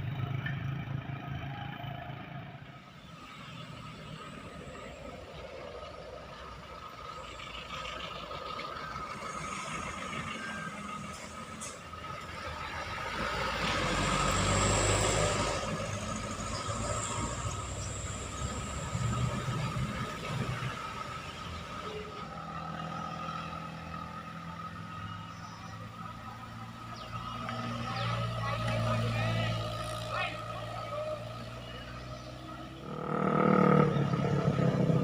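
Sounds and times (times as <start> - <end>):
engines running steadily: 0.0 - 35.0
vehicle passing close by: 12.6 - 35.0.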